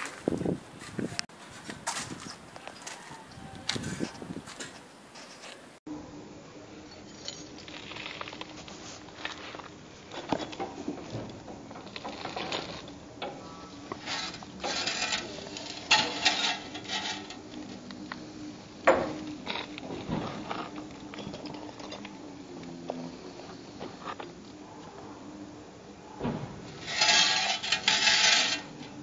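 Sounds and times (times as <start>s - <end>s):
faint steady hum: 0.4s - 29.0s
hand tools scraping on brick: 7.8s - 17.8s, 26.8s - 29.0s.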